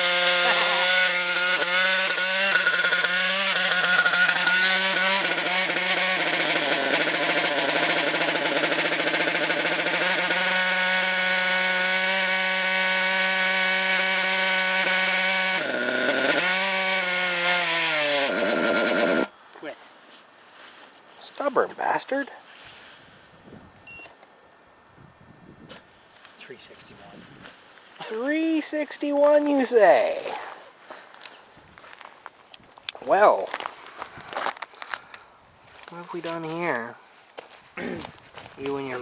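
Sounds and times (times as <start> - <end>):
model engine high-pitched buzz: 0.0 - 19.3.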